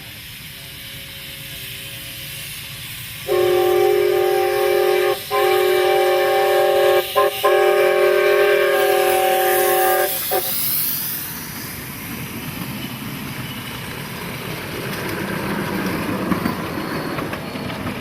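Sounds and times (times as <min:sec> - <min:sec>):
multi-chime train whistle: 0:03.2 - 0:11.1.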